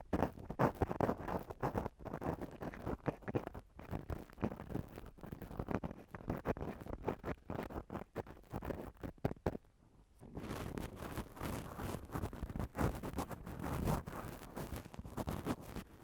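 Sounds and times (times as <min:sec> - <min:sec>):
ear-cleaning tool scratching microphone: 0:10.4 - 0:15.9.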